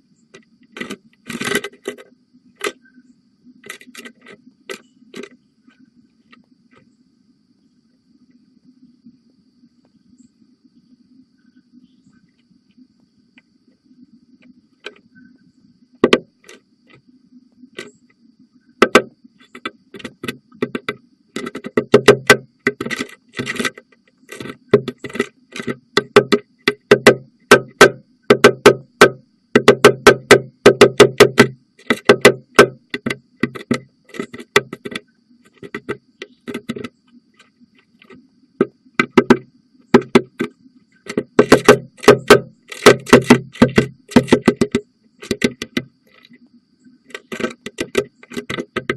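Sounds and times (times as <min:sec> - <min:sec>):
woodpecker pecking at wood: 0:00.4 - 0:02.8, 0:03.6 - 0:05.4, 0:16.0 - 0:17.0, 0:18.8 - 0:46.4, 0:47.1 - 0:48.9.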